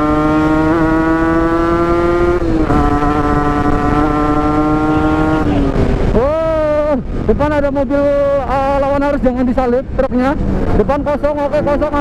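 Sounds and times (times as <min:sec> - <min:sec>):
motorcycle engine at high revs: 0:00.0 - 0:06.2.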